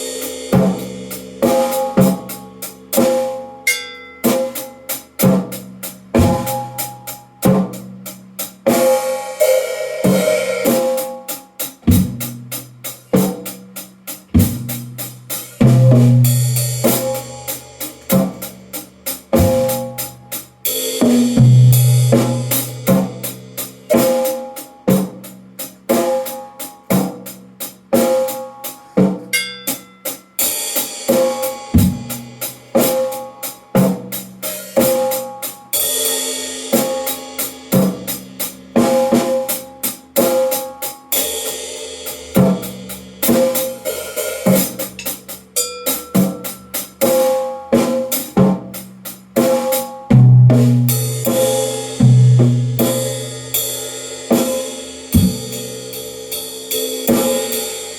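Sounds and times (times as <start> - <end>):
snare drum: 0.0 - 3.5, 4.2 - 27.4, 30.8 - 35.8, 36.6 - 41.6, 42.3 - 45.4, 46.0 - 53.3, 54.3 - 55.7
sustained cymbal wash: 0.0 - 7.5, 8.1 - 13.1, 14.1 - 24.8, 49.8 - 57.9
low-pitched drums ringing: 0.0 - 8.0, 15.6 - 24.0, 42.3 - 56.2
bass drum: 5.2 - 6.8, 14.3 - 18.6, 19.3 - 20.2, 50.1 - 53.4, 55.2 - 55.8.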